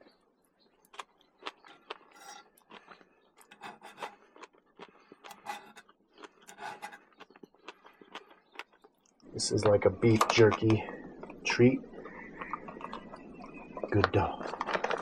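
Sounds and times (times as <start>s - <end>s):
small objects scraping and clicking: 1.0s - 8.9s.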